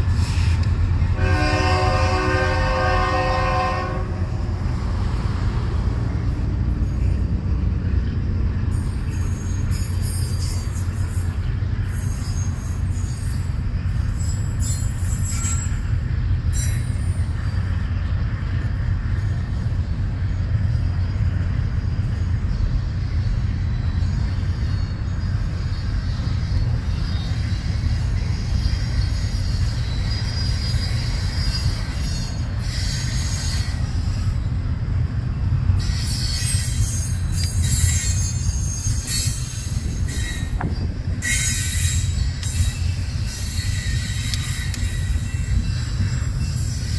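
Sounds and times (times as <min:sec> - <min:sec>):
freight train rumbling past: 0:00.0 - 0:46.9
high-pitched wheel squeal: 0:08.7 - 0:17.6, 0:22.5 - 0:34.6, 0:35.7 - 0:46.9.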